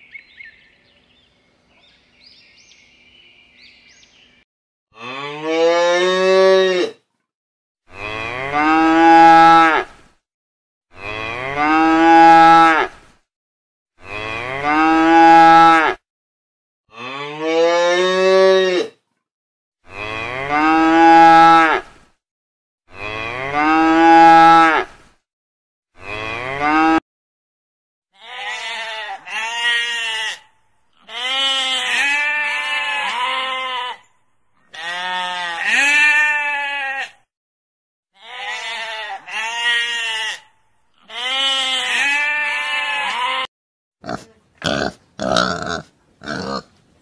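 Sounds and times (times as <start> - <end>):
sheep bleating: 28.2 - 34.1, 34.7 - 37.2, 38.2 - 46.7.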